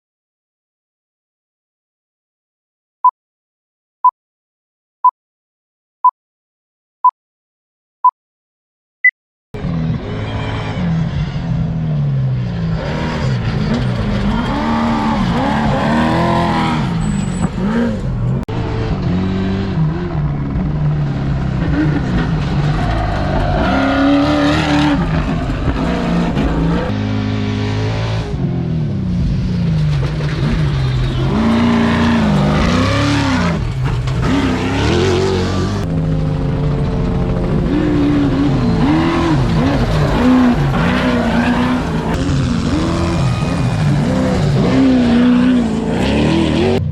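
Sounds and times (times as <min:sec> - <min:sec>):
racing engines revving past: 0:30.3 - 0:46.9.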